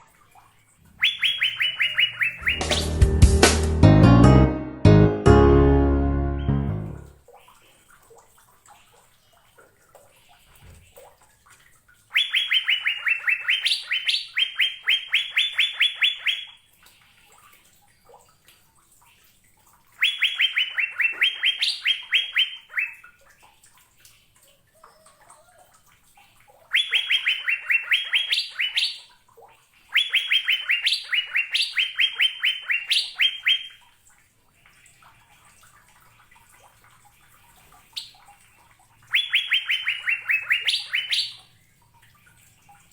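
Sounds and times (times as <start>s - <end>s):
bird whistling rapid notes: 1.0s - 3.2s, 12.2s - 16.5s, 20.0s - 23.0s, 26.7s - 29.0s, 30.0s - 33.8s, 39.1s - 41.4s.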